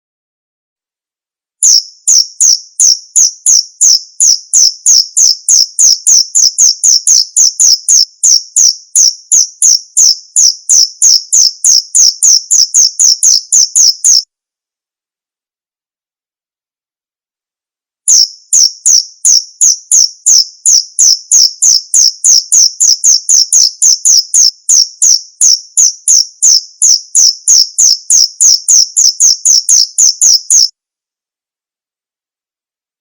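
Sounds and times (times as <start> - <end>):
cricket chirping: 1.6 - 14.2, 18.1 - 30.7.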